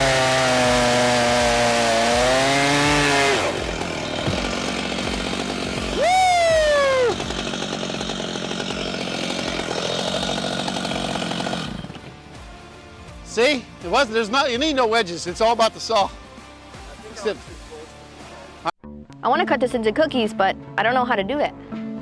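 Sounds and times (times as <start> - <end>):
chainsaw cutting wood: 0.0 - 14.4.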